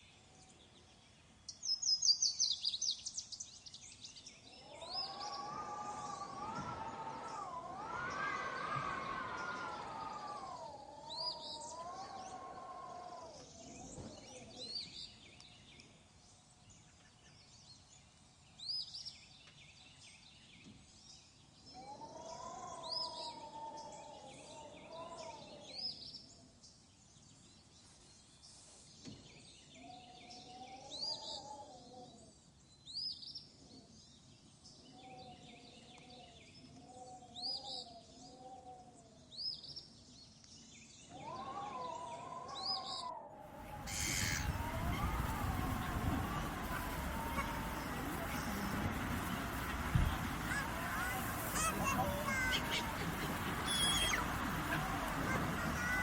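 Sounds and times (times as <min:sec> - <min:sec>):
small birds chirping: 0:00.0 - 0:16.4, 0:42.6 - 0:56.0.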